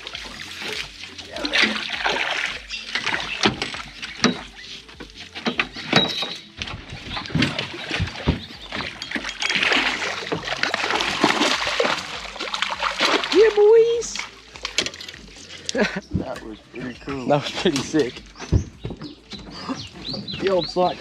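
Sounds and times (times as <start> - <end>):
fish thrashing in water: 0.0 - 16.5.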